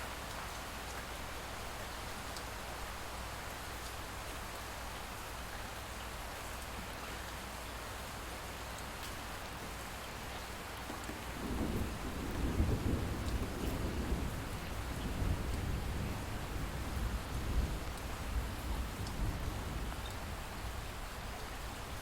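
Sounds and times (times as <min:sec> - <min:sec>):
light rain falling: 0:00.0 - 0:22.0
distant thunder rumble: 0:10.9 - 0:20.0.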